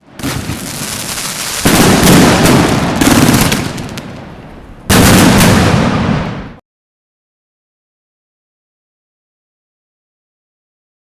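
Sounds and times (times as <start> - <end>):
fireworks bangs and crackling: 0.0 - 6.6.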